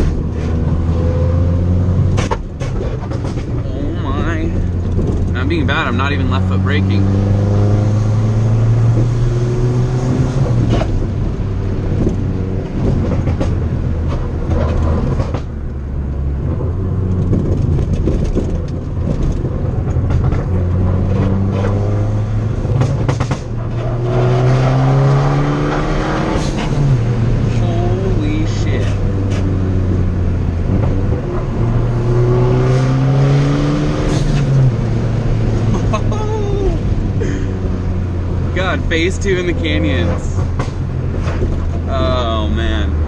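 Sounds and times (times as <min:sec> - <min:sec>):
car engine accelerating hard: 0:00.0 - 0:43.0
exhaust crackles and pops: 0:02.1 - 0:03.7, 0:10.4 - 0:15.8, 0:16.5 - 0:21.7, 0:22.6 - 0:24.0.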